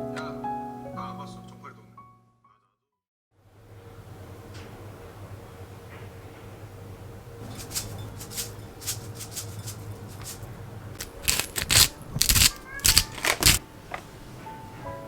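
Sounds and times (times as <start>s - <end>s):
kitchen utensils clicking: 7.4s - 14.1s.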